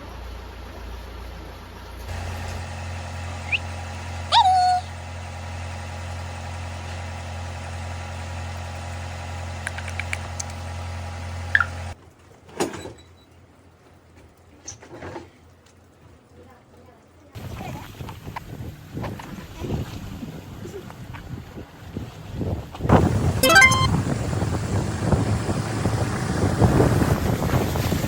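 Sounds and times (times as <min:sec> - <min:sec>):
low motor-like hum: 0:02.1 - 0:05.7.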